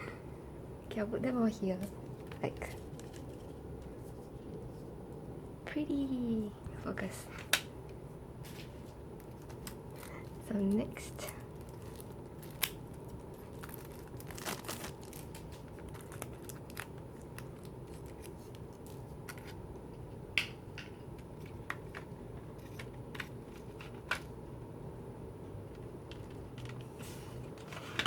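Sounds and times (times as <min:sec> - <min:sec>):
steady low hum: 0:00.0 - 0:28.0
paper and plastic crinkling: 0:01.8 - 0:04.6, 0:08.4 - 0:19.6.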